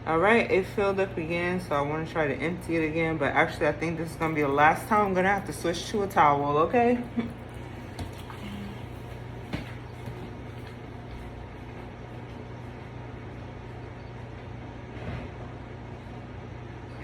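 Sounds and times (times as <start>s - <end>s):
vacuum cleaner sucking water: 2.2s - 9.7s.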